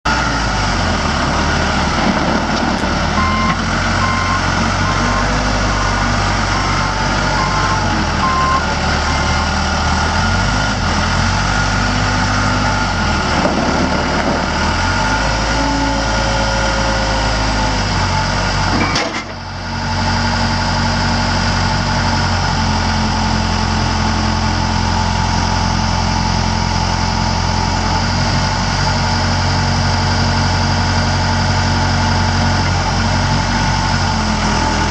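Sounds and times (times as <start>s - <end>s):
backhoe diesel engine running: 0.1s - 34.9s
backup alarm beeping: 3.2s - 9.4s.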